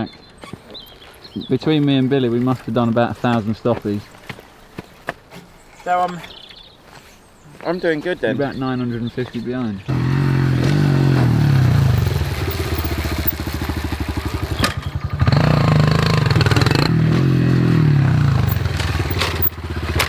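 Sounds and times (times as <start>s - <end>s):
motorbike engine revving: 9.9s - 20.0s.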